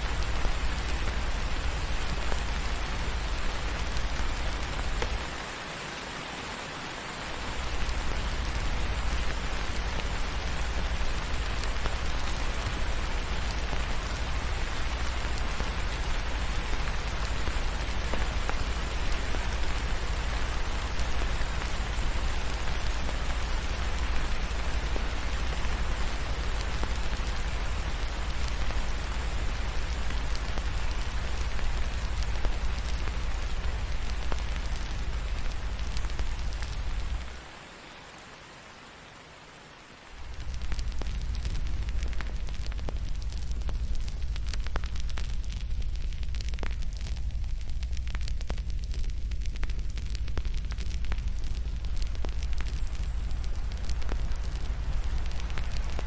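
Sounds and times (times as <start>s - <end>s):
heavy rain: 0.0s - 56.0s
deep rumble: 40.3s - 56.0s.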